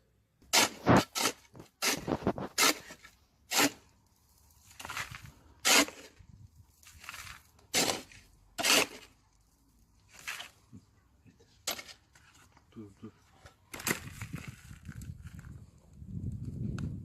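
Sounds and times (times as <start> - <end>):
shovel scooping sand: 0.4 - 9.2, 10.1 - 10.6, 11.6 - 12.5.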